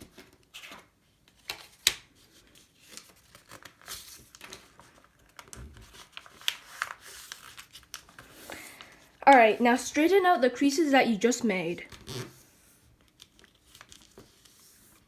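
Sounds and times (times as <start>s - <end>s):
paper rustling and crinkling: 0.0s - 10.1s, 11.9s - 15.0s.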